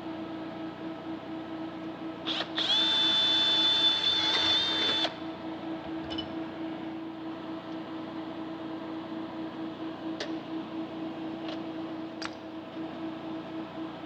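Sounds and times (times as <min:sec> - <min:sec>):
power drill whining: 0:02.3 - 0:05.2
small click: 0:12.2 - 0:12.4.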